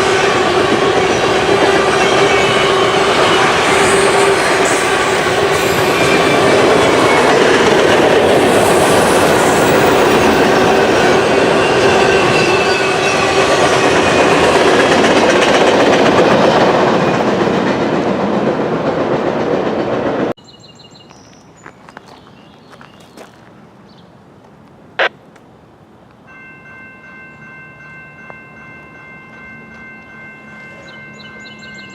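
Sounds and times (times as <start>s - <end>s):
freight train cars rolling: 0.0s - 20.4s.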